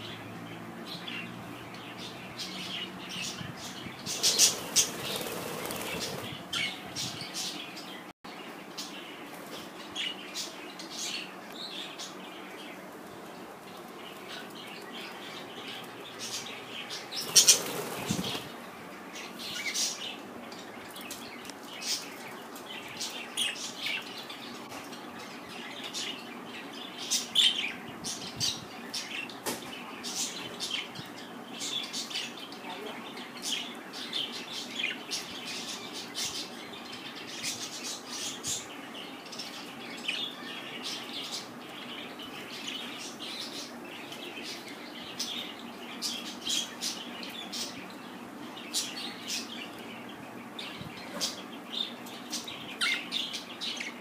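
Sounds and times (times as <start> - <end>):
budgerigars chirping: 1.8 - 8.0, 16.2 - 18.5
wing flapping: 4.1 - 6.7, 17.2 - 18.6.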